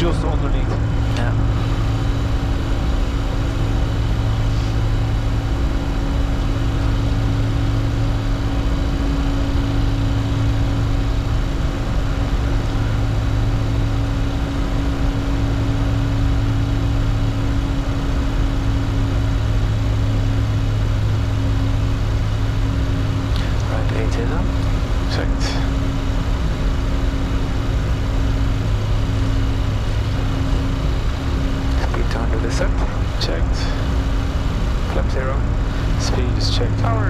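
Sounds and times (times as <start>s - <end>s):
constant low hum: 0.0s - 37.0s
jet cockpit airflow and engines: 0.0s - 37.0s.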